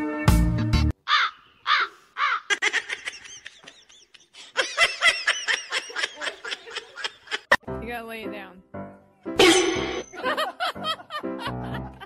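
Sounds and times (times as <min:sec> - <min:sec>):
woman laughing: 0:02.5 - 0:07.6, 0:10.0 - 0:12.0.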